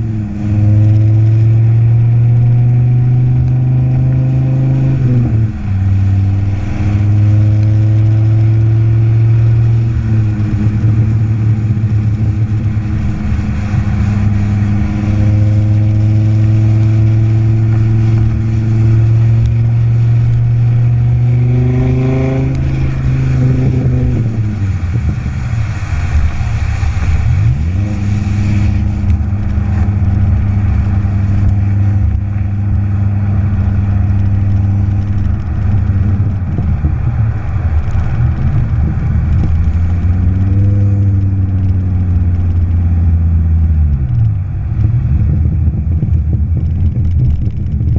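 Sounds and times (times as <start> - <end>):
car engine droning and revving: 0.0 - 47.9.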